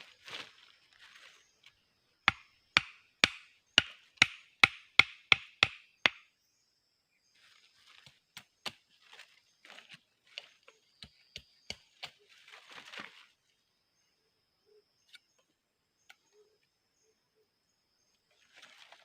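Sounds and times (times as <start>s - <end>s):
axe chopping wood: 2.3s - 6.2s.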